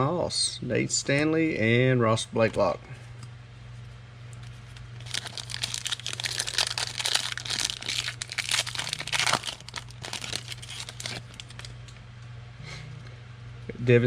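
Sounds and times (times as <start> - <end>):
steady low hum: 0.0 - 14.0
foil wrapper crinkling: 4.6 - 11.8.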